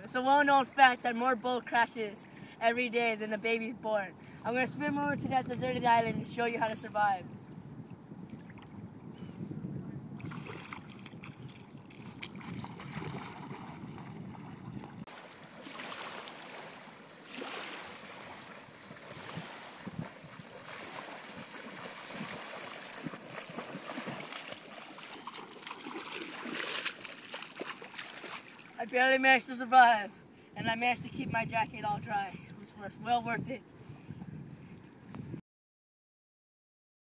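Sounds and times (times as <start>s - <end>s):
wind rumbling on microphone: 4.2s - 15.1s, 16.0s - 27.7s, 30.6s - 35.4s
water splashing and sloshing: 8.2s - 8.9s, 10.2s - 29.3s.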